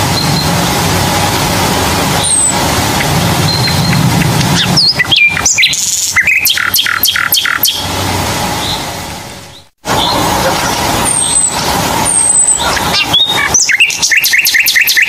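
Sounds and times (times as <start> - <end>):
steady background hum: 0.0 - 15.0
bird chirping: 2.2 - 7.9, 9.5 - 15.0.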